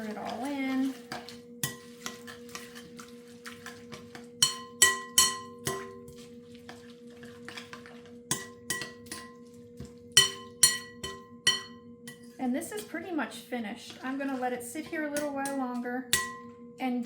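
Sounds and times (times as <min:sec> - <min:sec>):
spoon scraping in pot: 0:00.0 - 0:09.6
spoon clinking against pot: 0:04.1 - 0:06.1, 0:08.3 - 0:09.4, 0:10.2 - 0:12.9, 0:15.2 - 0:16.6.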